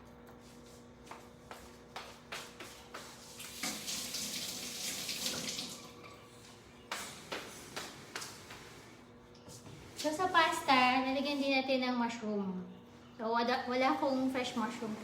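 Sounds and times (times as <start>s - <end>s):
kitchen tap running: 3.4s - 6.2s.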